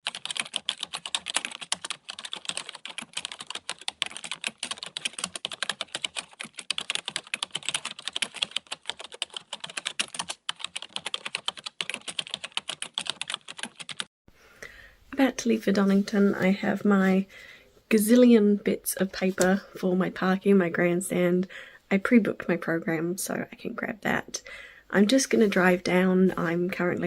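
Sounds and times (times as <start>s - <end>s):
fast typing on keyboard: 0.0s - 14.1s.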